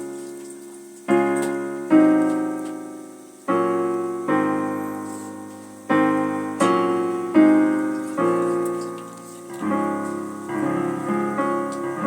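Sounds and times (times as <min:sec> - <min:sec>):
piano chords ringing: 0:00.0 - 0:12.0.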